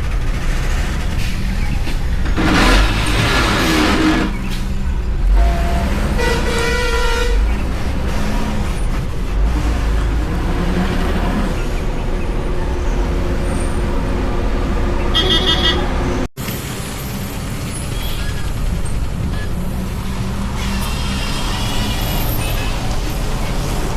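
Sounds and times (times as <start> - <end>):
heavy vehicle engines rumbling: 0.0 - 23.9
loud burst: 0.1 - 4.5
vehicle horn: 5.3 - 7.6, 15.1 - 16.1.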